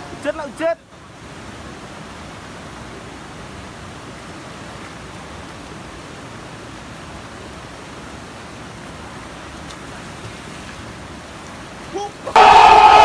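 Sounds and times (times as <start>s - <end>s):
waterfall rushing: 11.1s - 13.0s.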